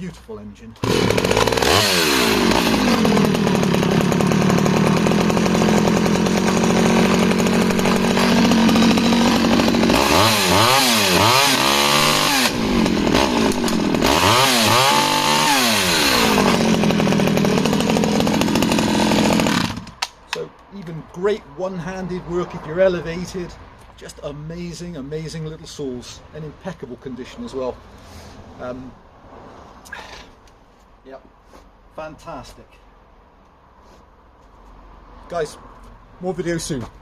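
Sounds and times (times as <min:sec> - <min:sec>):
chainsaw engine idling and revving: 0:00.8 - 0:20.4.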